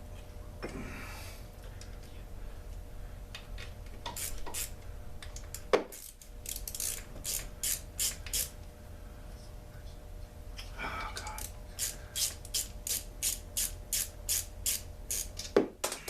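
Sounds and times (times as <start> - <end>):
tools and metal parts clicking: 5.4 - 8.5, 11.2 - 15.6.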